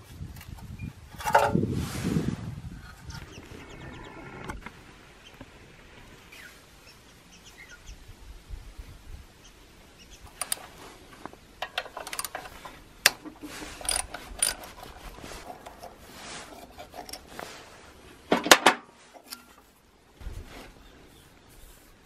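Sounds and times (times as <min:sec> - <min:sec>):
metal tools clicking and rattling: 0:10.3 - 0:10.8, 0:11.6 - 0:17.4.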